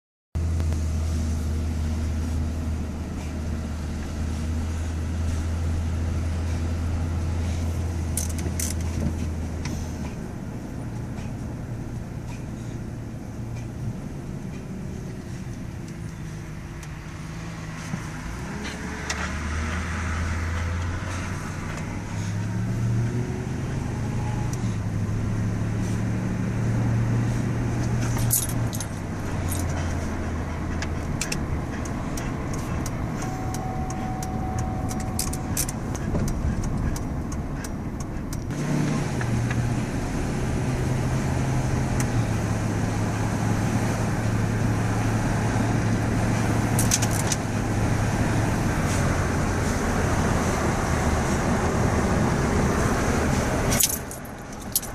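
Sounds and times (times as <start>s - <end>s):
pickup truck engine hum: 0.4s - 54.9s
road and wind noise: 0.4s - 54.9s
light metallic jingling clicks: 8.1s - 9.4s, 27.9s - 30.1s, 30.7s - 38.5s, 46.7s - 47.5s, 53.7s - 54.9s.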